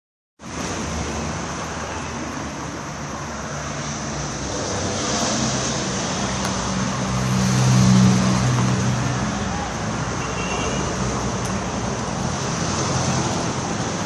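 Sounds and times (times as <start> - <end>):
road traffic going by: 0.4 - 14.0.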